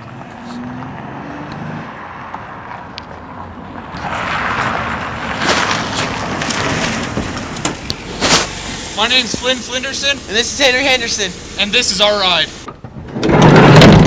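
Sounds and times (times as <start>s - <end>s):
loud rushing noise: 4.0s - 12.7s
van engine running: 5.4s - 12.7s.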